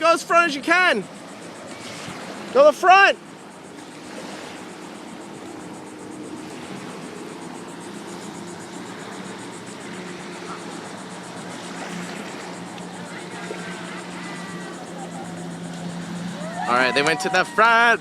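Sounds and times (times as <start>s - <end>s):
boat engine droning: 0.0s - 18.0s
water noise: 0.0s - 18.0s
wind: 0.0s - 18.0s.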